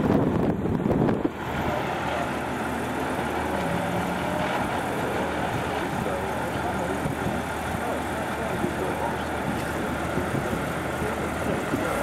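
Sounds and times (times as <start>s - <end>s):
sports car engines idling: 0.0s - 12.0s
car engine passing by: 1.2s - 6.9s.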